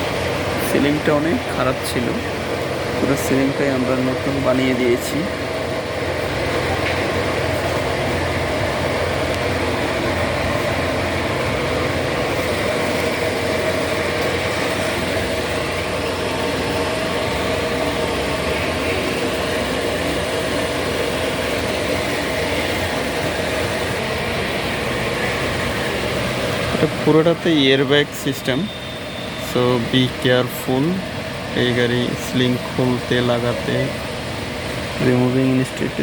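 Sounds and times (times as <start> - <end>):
steady machine hum: 0.0 - 36.0.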